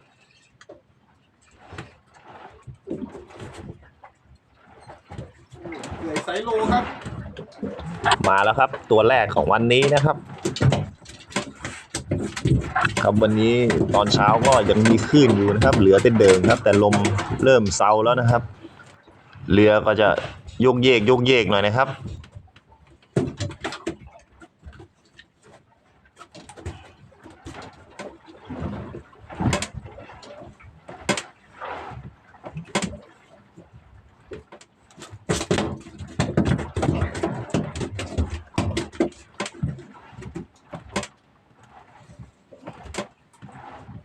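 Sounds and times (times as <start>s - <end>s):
knocks and clatter: 1.6s - 25.6s, 34.2s - 44.0s.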